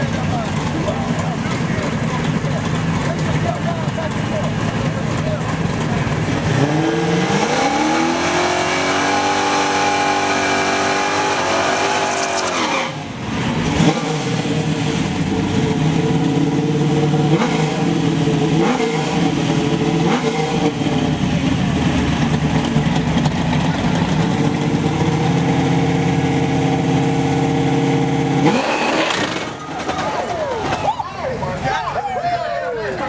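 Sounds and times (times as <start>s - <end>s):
engine lumpy idle with throttle blips: 0.0s - 7.2s, 13.0s - 32.0s
engine revving: 0.0s - 30.1s.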